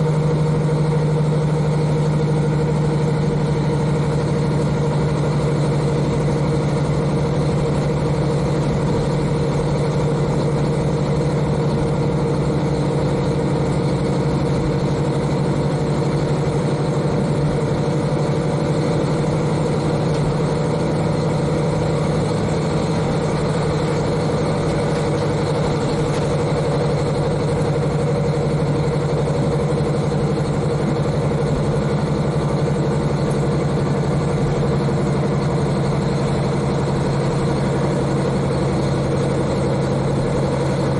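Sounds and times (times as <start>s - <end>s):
diesel engine running steadily: 0.0s - 40.9s.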